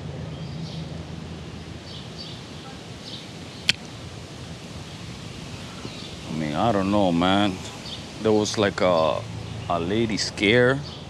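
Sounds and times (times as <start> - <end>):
low background noise: 0.0 - 11.0
sharp click: 3.6 - 3.9
bird chirps: 4.9 - 11.0.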